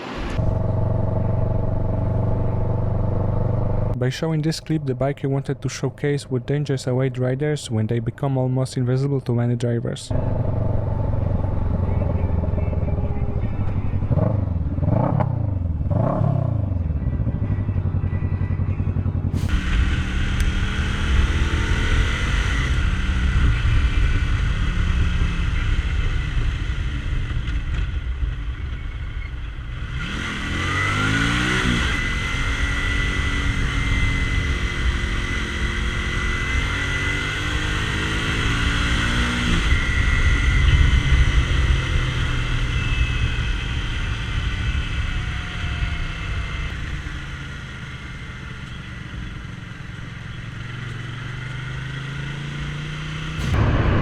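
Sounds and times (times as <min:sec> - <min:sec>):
motorcycle engine revving: 0:00.0 - 0:04.0, 0:10.1 - 0:54.0
road noise: 0:00.0 - 0:54.0.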